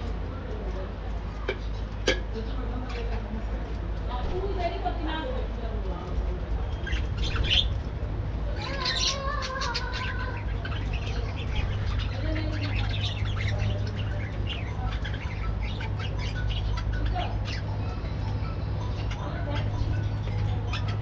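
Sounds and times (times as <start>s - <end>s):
budgerigars chattering: 6.6s - 7.9s, 8.5s - 21.0s.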